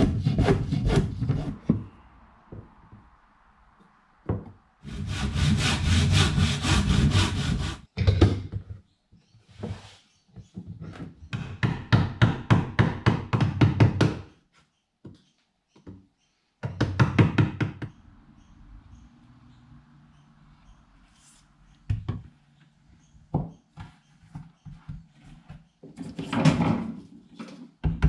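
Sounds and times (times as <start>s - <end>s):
hand saw cutting wood: 0.0s - 1.6s, 4.8s - 7.9s.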